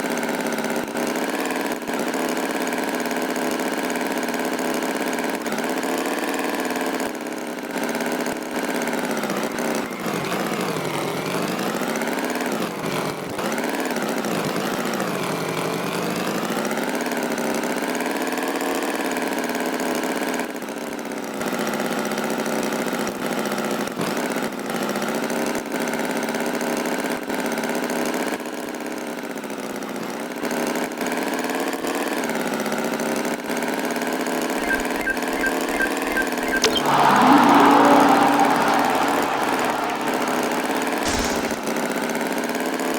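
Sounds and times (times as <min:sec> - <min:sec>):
tractor engine running: 0:34.6 - 0:42.2.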